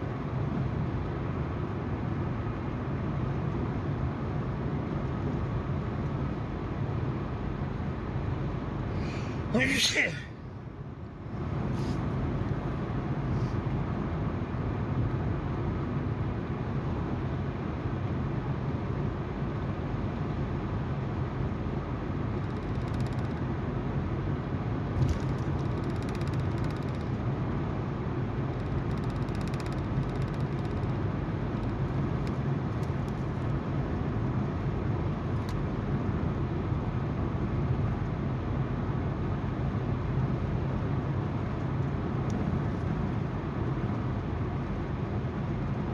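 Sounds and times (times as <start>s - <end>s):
tyres on the road: 0.0s - 45.9s
car engine hum: 11.2s - 45.9s
faint ticks: 22.4s - 23.4s, 25.0s - 27.2s, 28.6s - 31.0s.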